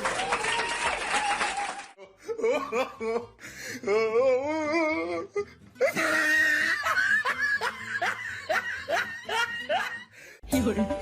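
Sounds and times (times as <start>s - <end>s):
person laughing hard: 2.0s - 3.4s, 5.8s - 10.1s.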